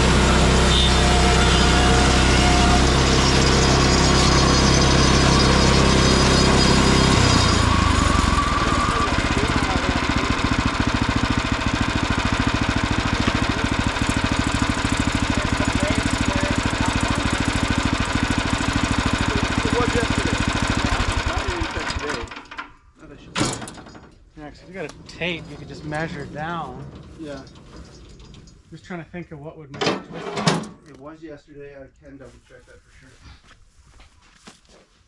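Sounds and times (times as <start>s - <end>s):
small gasoline engine running: 0.0s - 22.7s.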